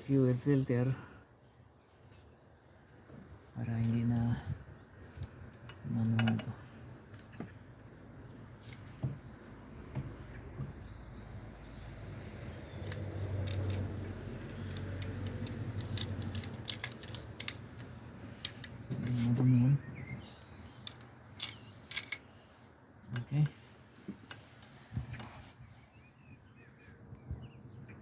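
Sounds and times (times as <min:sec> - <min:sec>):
plastic fittings clicking: 0:12.8 - 0:19.3, 0:20.8 - 0:22.2.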